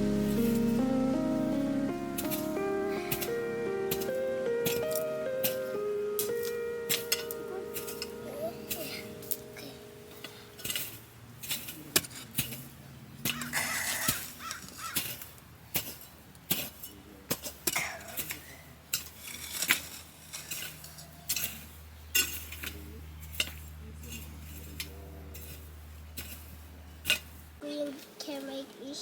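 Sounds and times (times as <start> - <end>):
low steady hum: 0.0 - 14.6, 18.4 - 27.6
harsh bird call: 13.3 - 15.1.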